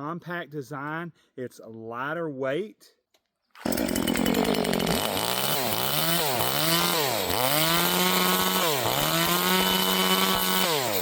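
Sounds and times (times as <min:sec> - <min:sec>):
chainsaw running at high speed: 0:03.6 - 0:11.0.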